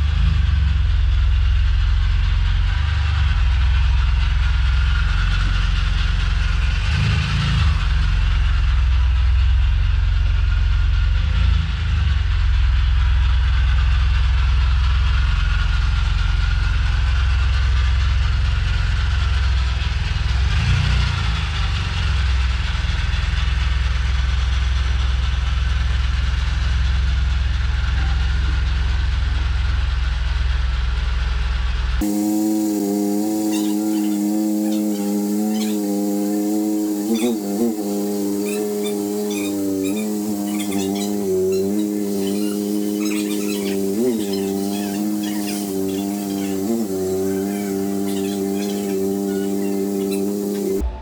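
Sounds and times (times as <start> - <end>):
car engine deep rumble: 27.2 - 51.0.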